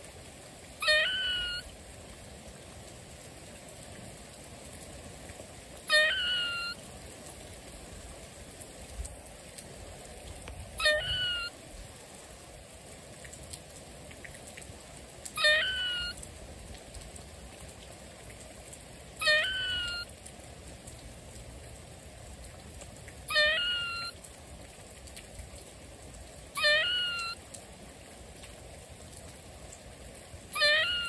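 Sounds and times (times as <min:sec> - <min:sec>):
steady rain: 0:00.0 - 0:31.0
loud animal call: 0:00.8 - 0:01.7, 0:05.9 - 0:06.8, 0:10.8 - 0:11.5, 0:15.4 - 0:16.2, 0:19.2 - 0:20.1, 0:23.3 - 0:24.2, 0:26.6 - 0:27.4, 0:30.5 - 0:31.0.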